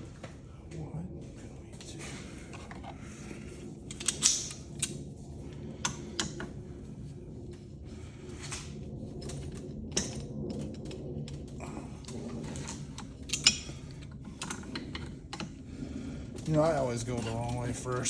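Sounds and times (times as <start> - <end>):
metal parts and tools clanking: 3.9 - 4.9, 12.4 - 15.6.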